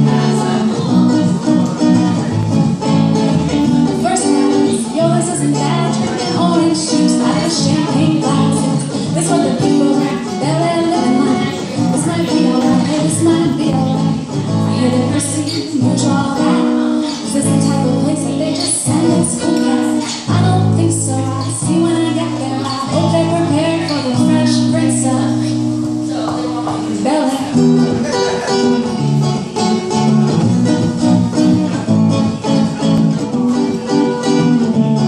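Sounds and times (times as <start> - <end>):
plucked guitar: 0.0 - 35.0.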